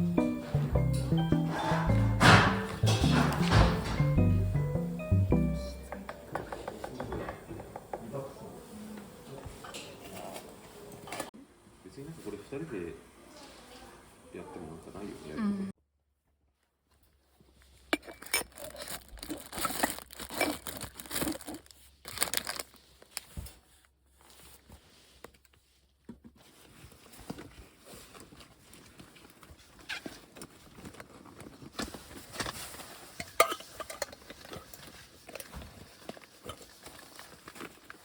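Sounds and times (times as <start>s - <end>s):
crinkling and crunching: 17.2s - 38.0s.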